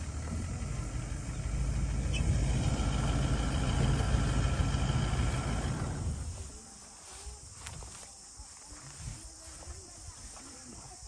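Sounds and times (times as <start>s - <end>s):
vehicle engine rumbling: 0.0s - 8.0s.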